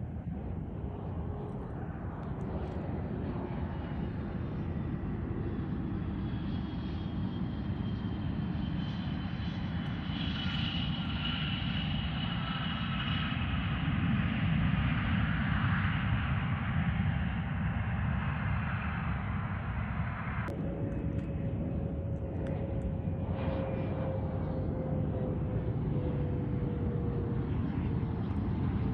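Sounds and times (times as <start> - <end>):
airplane engine rumble: 0.0 - 28.9
faint high whine: 17.5 - 28.9.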